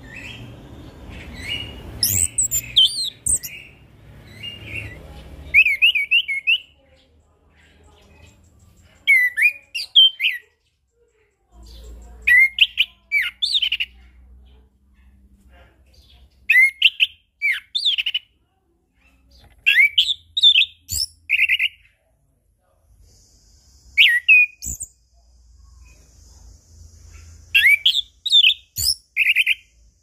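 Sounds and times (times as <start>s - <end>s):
thrush singing whistled phrases: 1.5s - 3.7s, 24.0s - 24.9s, 27.5s - 29.7s.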